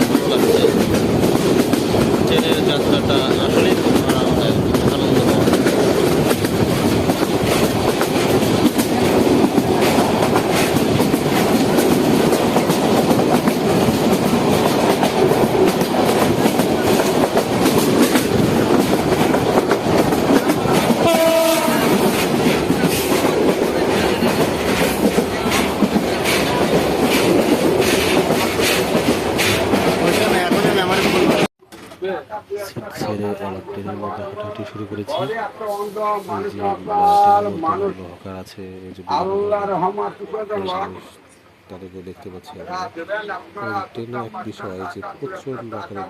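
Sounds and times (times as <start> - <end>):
rail-joint clicks: 0.0 - 32.0
train wheels rumbling on track: 0.0 - 32.1.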